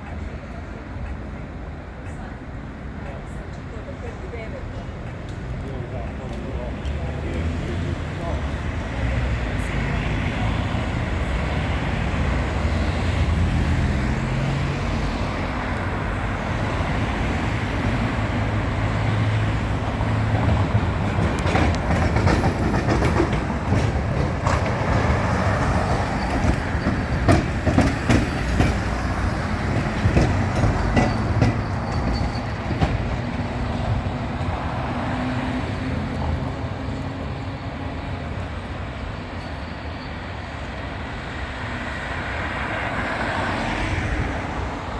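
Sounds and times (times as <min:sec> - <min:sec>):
tram motor hum: 0:04.6 - 0:42.9
wheels clacking over rail joints: 0:10.2 - 0:37.4.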